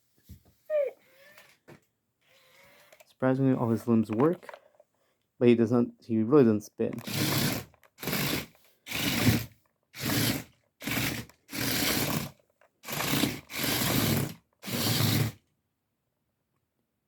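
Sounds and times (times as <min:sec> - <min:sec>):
robot toy gear motors whirring: 0:06.9 - 0:15.4.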